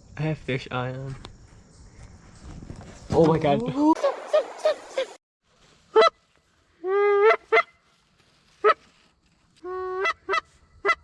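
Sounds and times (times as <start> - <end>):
geese honking: 4.0 - 5.2.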